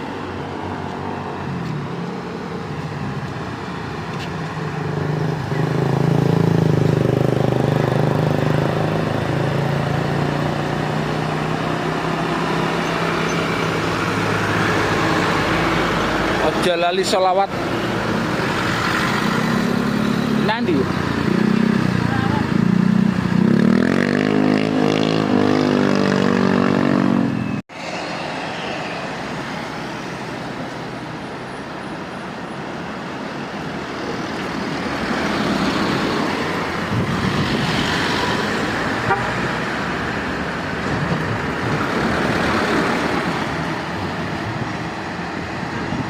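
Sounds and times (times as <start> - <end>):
trucks passing on road: 0.0 - 46.0
loud pitched horn: 39.0 - 39.5.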